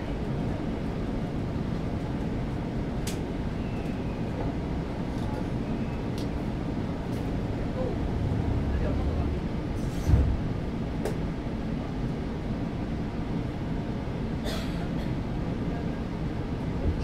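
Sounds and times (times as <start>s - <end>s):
train interior hum: 0.0s - 17.0s
low thump: 10.0s - 10.5s.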